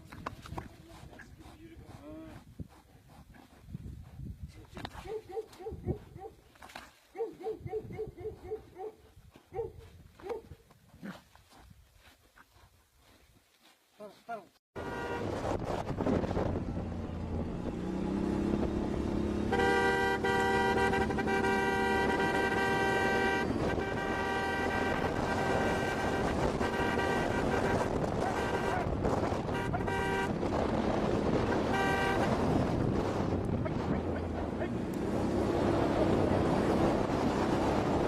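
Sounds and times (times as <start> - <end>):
vehicle horn: 14.8 - 15.4, 19.3 - 30.5, 31.4 - 32.7
engine and road noise: 14.8 - 38.0.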